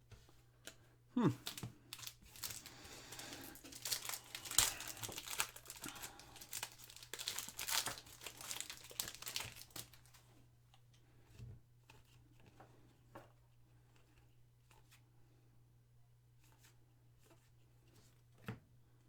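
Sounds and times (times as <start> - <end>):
foil wrapper crinkling and tearing: 1.4 - 10.3.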